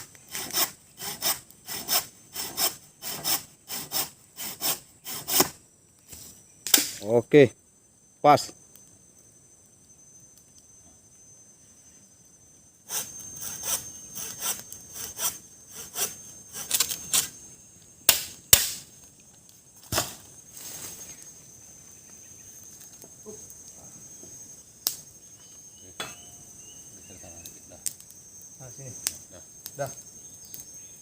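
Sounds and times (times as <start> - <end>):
high insect drone: 0.0 - 31.0
blade cutting wood: 0.3 - 5.6, 12.9 - 17.3.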